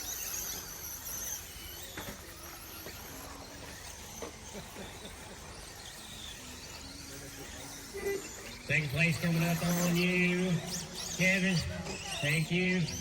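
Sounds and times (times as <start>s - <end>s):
rc truck motors and tyres: 0.0s - 13.0s.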